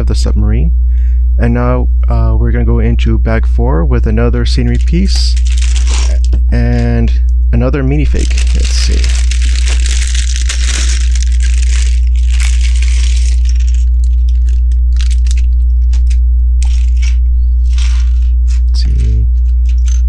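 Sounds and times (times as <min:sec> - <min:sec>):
low mains hum: 0:00.0 - 0:20.0
plastic bag crinkling: 0:04.6 - 0:06.4, 0:08.0 - 0:20.0
plastic pieces clicking and rattling: 0:08.2 - 0:17.1, 0:18.9 - 0:20.0.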